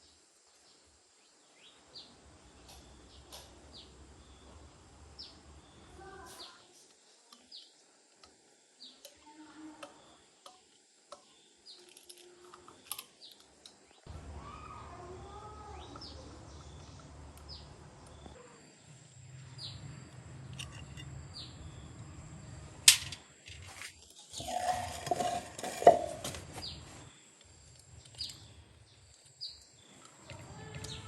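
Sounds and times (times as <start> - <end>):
metal parts clinking: 20.5 - 21.2, 22.9 - 25.9.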